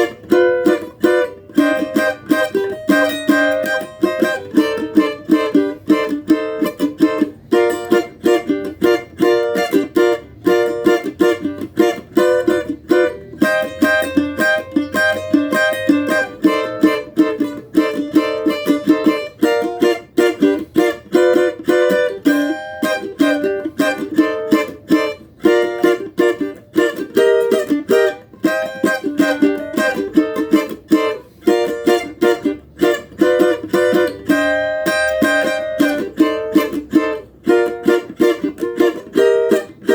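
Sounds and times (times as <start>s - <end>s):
cavaquinho strummed fast: 0.0s - 39.9s.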